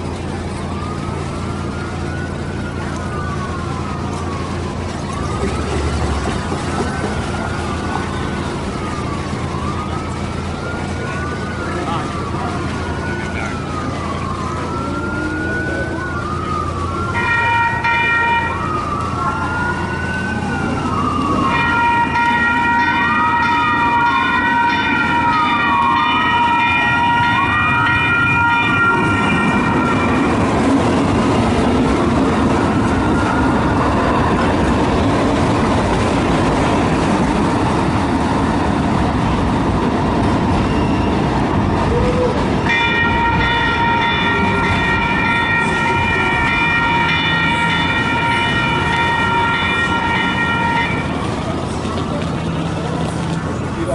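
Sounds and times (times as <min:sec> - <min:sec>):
emergency siren wailing: 0:00.0 - 0:53.9
train rumbling past: 0:00.0 - 0:53.9
multi-tone horn blast: 0:42.7 - 0:51.2.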